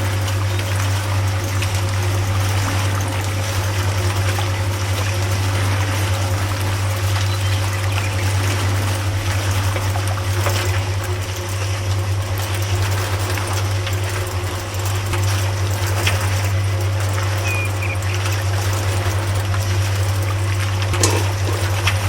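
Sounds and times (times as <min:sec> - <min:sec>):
water trickling and splashing: 0:00.0 - 0:22.0
small ticks: 0:12.4 - 0:21.2.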